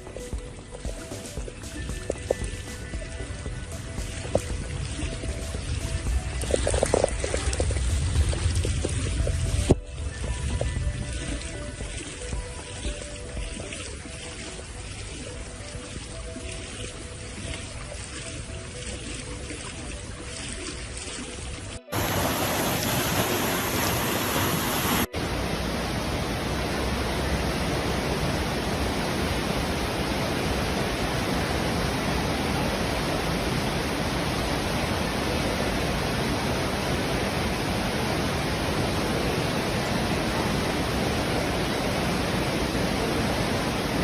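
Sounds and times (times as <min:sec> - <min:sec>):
loud steady rushing noise: 0:21.9 - 0:44.0.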